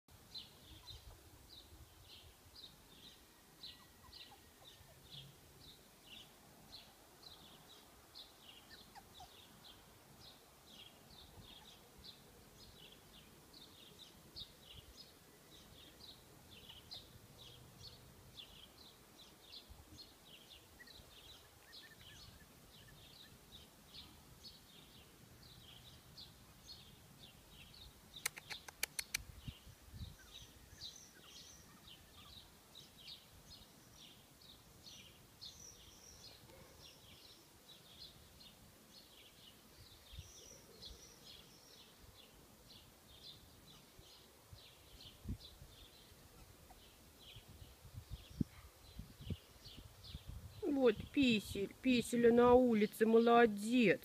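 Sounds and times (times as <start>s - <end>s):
small bird chirping: 0.3s - 53.1s
sharp clicks: 28.2s - 29.3s.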